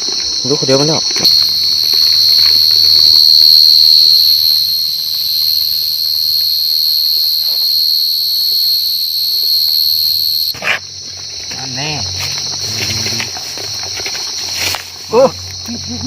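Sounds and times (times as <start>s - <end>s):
cricket trilling: 0.0s - 16.0s.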